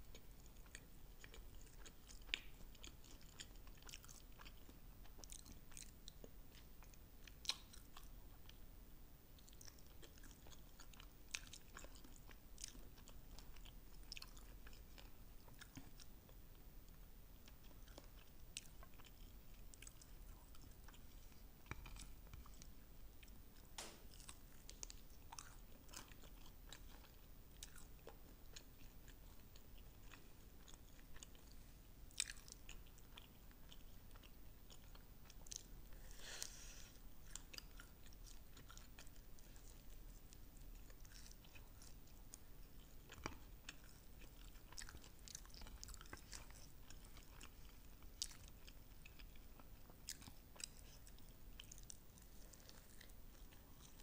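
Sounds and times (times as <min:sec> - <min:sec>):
chewing crunchy food: 0:00.0 - 0:08.7, 0:09.3 - 0:54.0.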